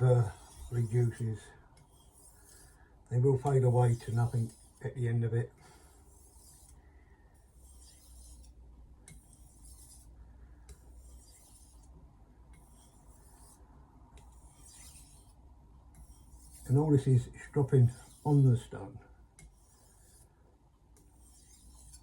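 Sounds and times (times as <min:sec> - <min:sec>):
knife scraping on whetstone: 0:00.0 - 0:02.8, 0:03.4 - 0:04.9, 0:05.7 - 0:06.8, 0:07.4 - 0:10.1, 0:10.7 - 0:11.9, 0:12.5 - 0:13.6, 0:14.2 - 0:18.5, 0:19.4 - 0:20.4, 0:21.0 - 0:22.0.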